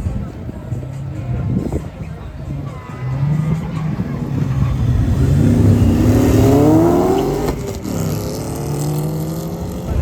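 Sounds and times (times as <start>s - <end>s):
racing engine accelerating: 2.5s - 10.0s.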